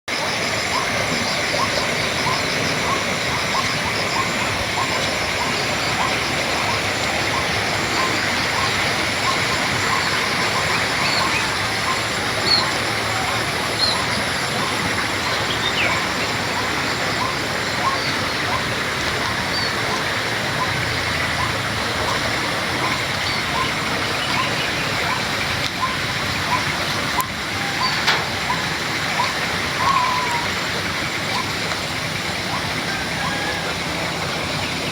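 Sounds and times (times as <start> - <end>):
river water babbling: 0.1 - 34.9
small bird chirping: 0.8 - 18.6.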